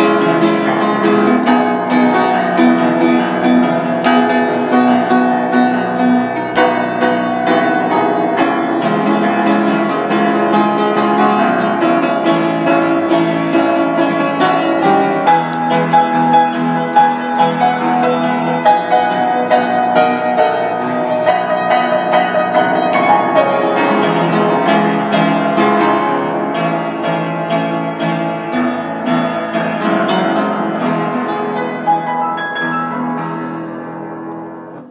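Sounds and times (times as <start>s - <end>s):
solo piano playing: 0.0s - 34.9s.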